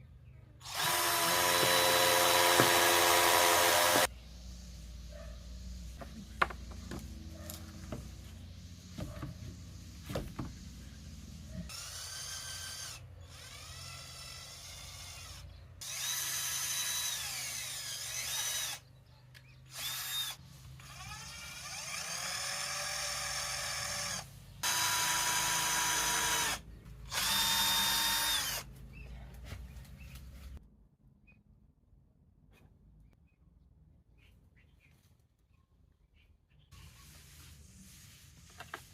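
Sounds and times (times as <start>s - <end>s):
power drill whining: 0.6s - 4.1s, 11.7s - 18.8s, 19.7s - 28.7s.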